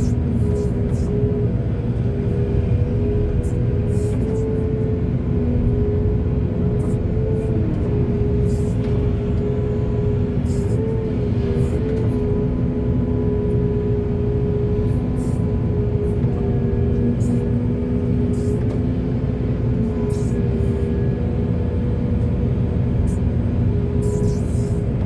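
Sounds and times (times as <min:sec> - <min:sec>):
diesel digger engine rumbling: 0:00.0 - 0:25.0
steady whine: 0:00.0 - 0:25.0.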